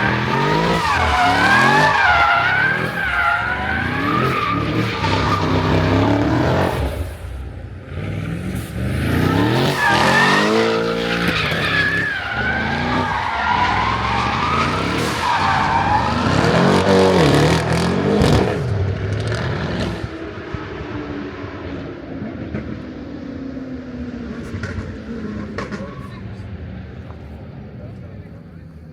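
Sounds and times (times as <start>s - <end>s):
tyres squealing on pavement: 0.0s - 7.0s, 8.6s - 17.7s, 24.6s - 26.6s
car engine revving: 0.0s - 28.6s.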